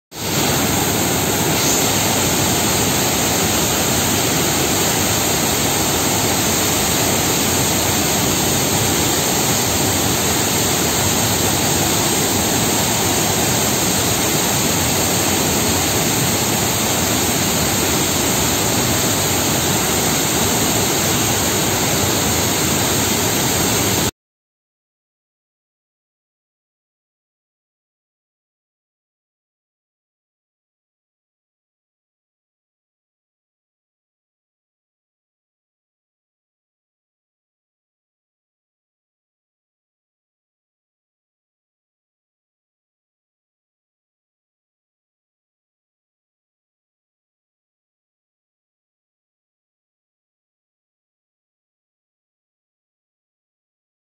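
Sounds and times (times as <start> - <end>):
waterfall rushing: 0.2 - 24.1.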